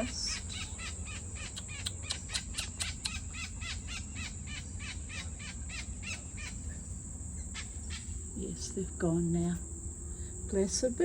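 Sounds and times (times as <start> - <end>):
bird chirping rapidly: 0.0 - 6.6
high insect drone: 0.0 - 11.0.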